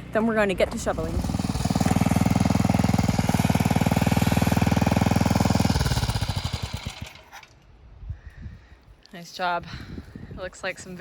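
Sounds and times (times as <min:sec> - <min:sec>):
rototiller engine running: 0:00.0 - 0:07.5.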